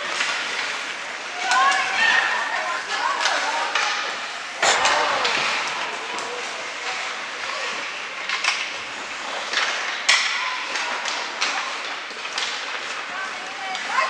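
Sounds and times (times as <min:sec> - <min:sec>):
hockey sticks and puck clacking: 0:00.0 - 0:14.0
faint crowd voices: 0:01.2 - 0:09.5.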